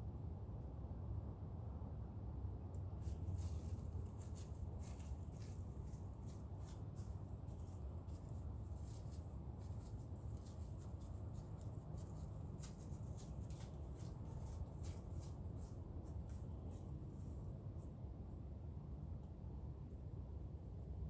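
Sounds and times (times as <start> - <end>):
low outdoor rumble: 0.0 - 21.0
crackling in dry leaves: 3.0 - 17.8.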